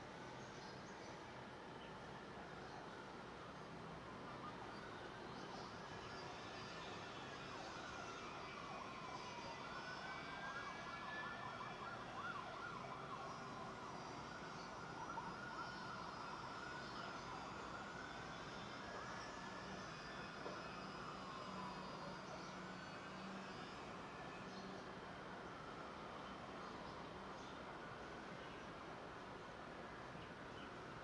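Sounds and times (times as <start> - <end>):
distant siren wailing: 4.0 - 5.0, 5.8 - 27.2.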